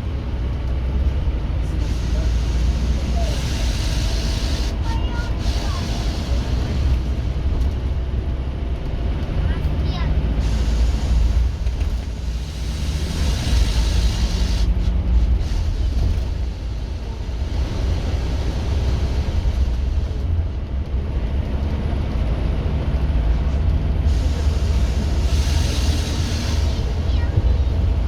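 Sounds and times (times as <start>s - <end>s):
bus diesel engine rumbling: 0.0s - 28.0s
air hiss: 1.8s - 7.2s, 12.2s - 14.8s, 24.2s - 27.1s.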